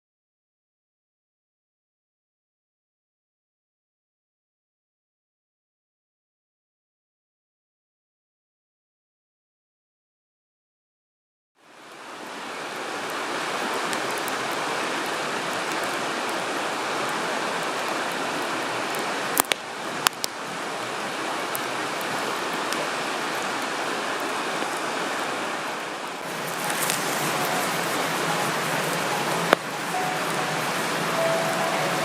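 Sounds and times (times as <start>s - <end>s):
running water: 11.6s - 32.0s
campfire wood popping: 18.9s - 20.4s, 26.2s - 31.0s.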